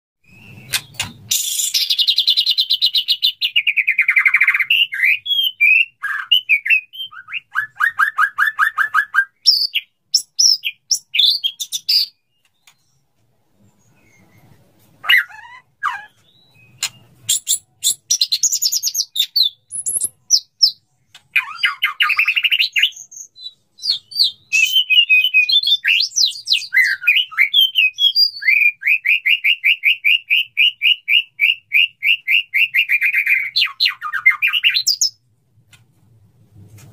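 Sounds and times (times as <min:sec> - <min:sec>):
songbird singing whistled phrases: 0:00.2 - 0:13.0, 0:13.8 - 0:35.2.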